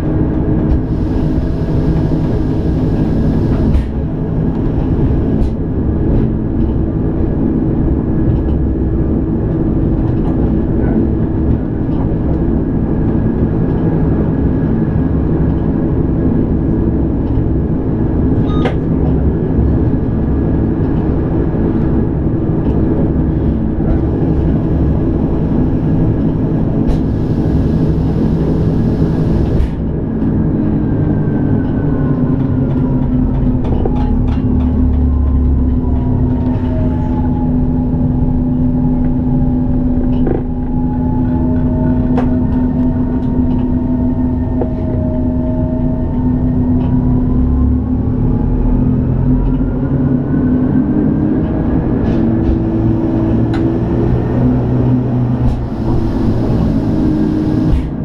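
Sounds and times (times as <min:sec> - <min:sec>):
train running drone: 0:00.0 - 0:58.0
motor and gearing whine: 0:00.8 - 0:05.2, 0:54.3 - 0:58.0.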